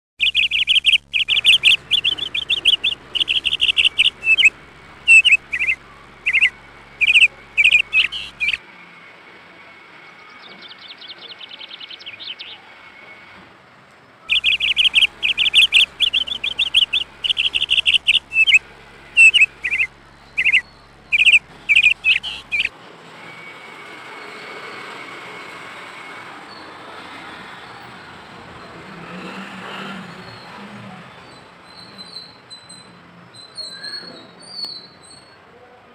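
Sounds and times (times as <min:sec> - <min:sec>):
birds chirping: 0:00.2 - 0:08.6, 0:10.4 - 0:12.6, 0:14.3 - 0:22.7
soft fast bird trill: 0:00.2 - 0:08.6, 0:14.3 - 0:22.7.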